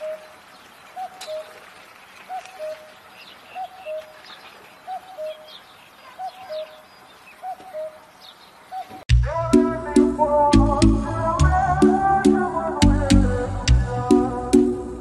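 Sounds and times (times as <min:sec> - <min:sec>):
bird cooing: 0:00.0 - 0:09.0.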